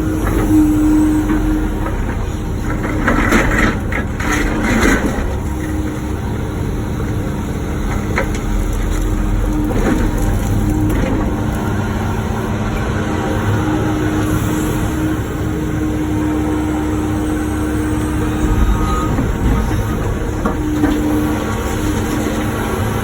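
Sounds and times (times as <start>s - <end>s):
excavator diesel engine whining: 0.0s - 23.0s.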